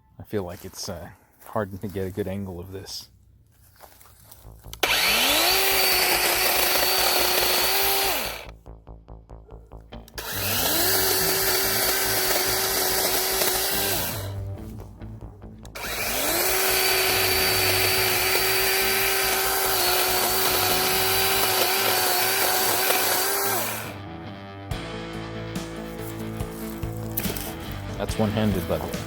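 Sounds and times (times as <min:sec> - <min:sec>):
electric chainsaw motor whining: 0:04.7 - 0:08.5, 0:10.1 - 0:14.7, 0:15.7 - 0:24.0, 0:26.5 - 0:27.9.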